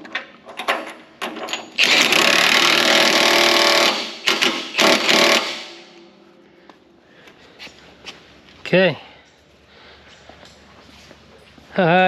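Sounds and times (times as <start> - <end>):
impact wrench hammering: 1.7 - 5.9.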